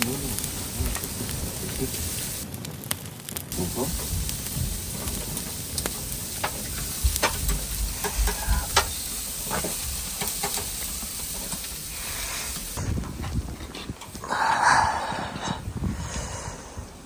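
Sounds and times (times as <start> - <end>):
food sizzling in a pan: 0.0 - 2.4, 3.5 - 12.9
oil popping and clicking: 0.0 - 14.2.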